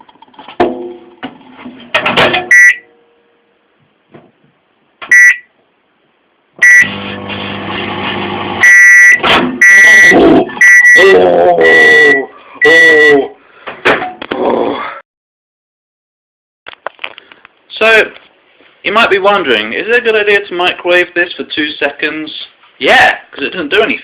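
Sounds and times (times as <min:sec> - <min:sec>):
microwave end-of-cycle beeps: 0:02.5 - 0:02.9, 0:05.1 - 0:05.4, 0:06.6 - 0:07.7, 0:08.6 - 0:10.0
microwave keypad beeps: 0:02.5 - 0:02.9, 0:05.1 - 0:05.5, 0:06.6 - 0:07.0, 0:08.6 - 0:11.1
microwave oven humming: 0:06.8 - 0:08.6.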